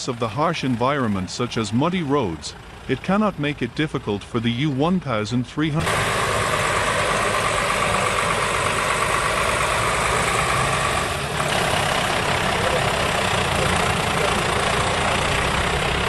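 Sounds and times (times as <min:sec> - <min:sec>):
diesel truck engine running: 0:00.0 - 0:16.0
steady whine: 0:05.7 - 0:15.4.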